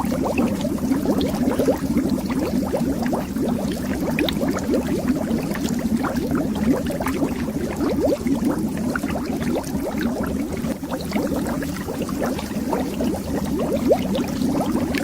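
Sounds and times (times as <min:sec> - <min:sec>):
underwater bubbles rising: 0:00.0 - 0:15.0.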